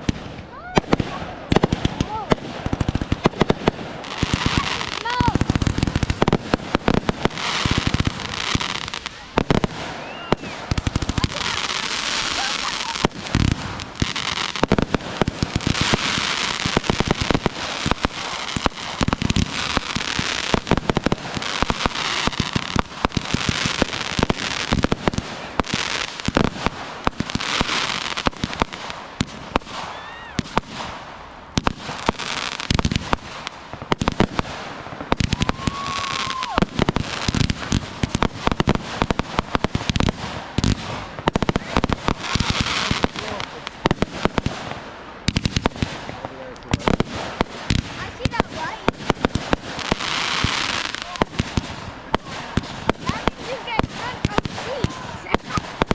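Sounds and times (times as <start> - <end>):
fireworks bangs and pops: 0.0 - 55.9
fireworks crackling and hiss: 0.0 - 55.9
firework whistle: 7.4 - 14.6, 29.5 - 31.0, 35.1 - 37.8.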